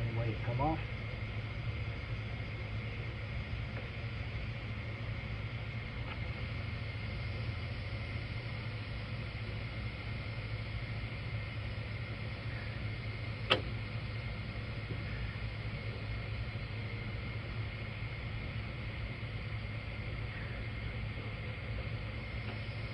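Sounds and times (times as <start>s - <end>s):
steady low hum: 0.0s - 22.9s
sharp click: 13.5s - 13.8s.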